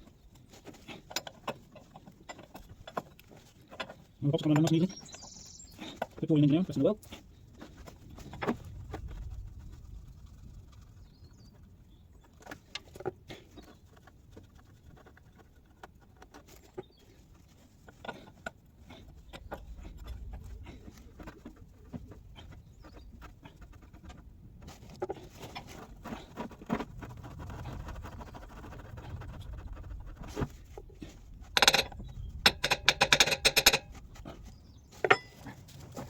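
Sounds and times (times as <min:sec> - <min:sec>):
hand tools tapping metal: 0:00.6 - 0:05.3, 0:31.6 - 0:34.0, 0:35.0 - 0:35.6.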